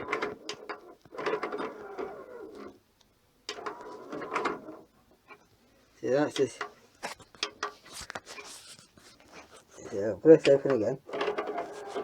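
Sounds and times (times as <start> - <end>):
disc tray motor whirring with clicks: 10.4 - 12.0.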